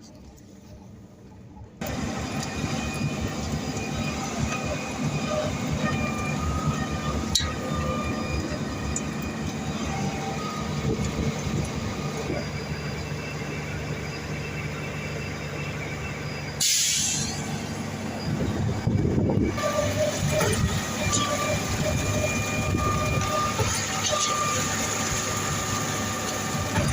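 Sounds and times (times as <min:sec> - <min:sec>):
diesel engine rumbling: 0:00.0 - 0:26.9
hissing burst: 0:16.6 - 0:17.8.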